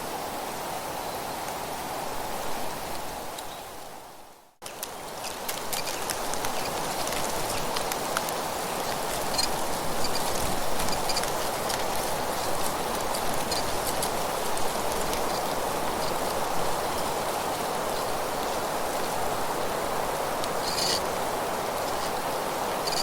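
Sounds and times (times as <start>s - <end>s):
wind through trees: 0.0s - 23.0s
dry leaves rustling: 4.6s - 23.0s.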